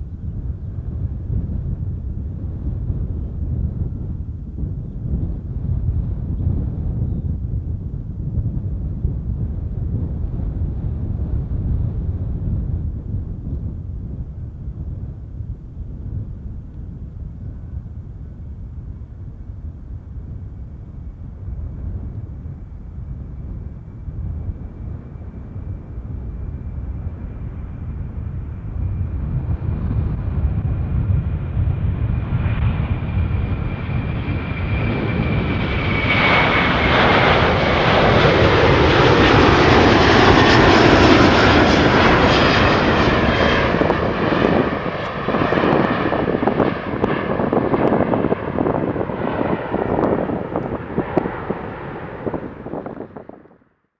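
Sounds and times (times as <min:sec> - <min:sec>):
high jet fan whine: 0:00.0 - 0:53.8
jet engines roaring: 0:21.0 - 0:53.6.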